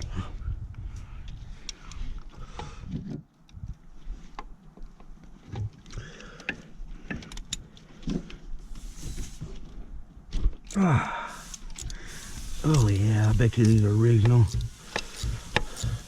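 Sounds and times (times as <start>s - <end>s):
socket wrench clicks and clinks: 11.4s - 16.0s.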